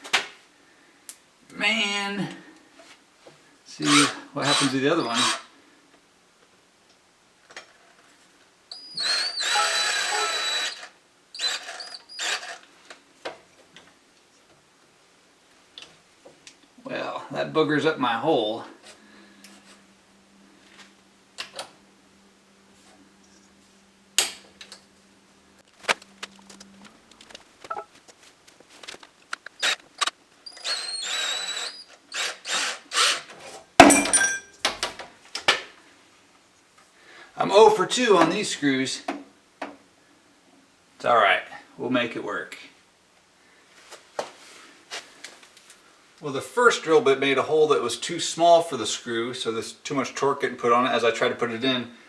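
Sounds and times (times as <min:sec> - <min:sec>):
drill click: 0:03.8 - 0:05.5, 0:08.7 - 0:12.6, 0:29.4 - 0:34.8
power drill driving screw: 0:03.8 - 0:05.5, 0:08.7 - 0:12.7, 0:29.5 - 0:33.9.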